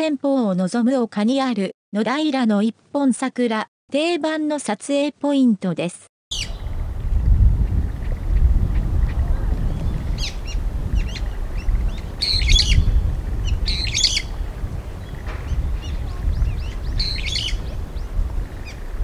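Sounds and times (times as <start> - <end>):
small birds chirping: 6.3 - 19.0
steady low rumble: 6.4 - 19.0.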